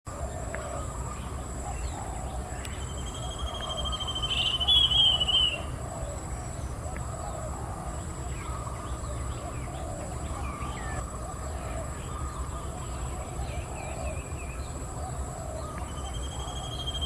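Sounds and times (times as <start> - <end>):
bird trilling call: 2.8 - 5.7.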